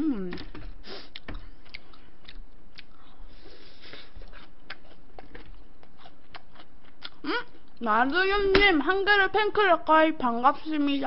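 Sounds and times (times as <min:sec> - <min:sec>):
person chewing crispy food: 0:00.8 - 0:07.8.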